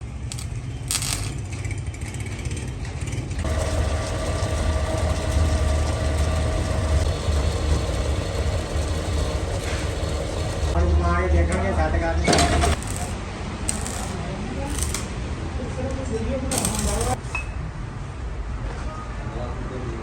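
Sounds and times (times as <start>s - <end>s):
machine starting up and whining: 2.1s - 10.8s, 12.3s - 13.0s
workshop machinery humming: 3.4s - 10.9s, 11.5s - 15.2s, 16.5s - 17.2s.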